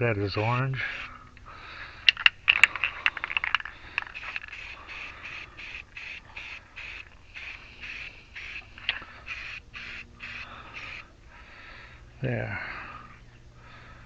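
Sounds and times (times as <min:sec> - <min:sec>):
spray paint hissing bursts: 0:00.8 - 0:01.1, 0:03.5 - 0:11.0
spray can rattling when shaken: 0:02.1 - 0:11.0.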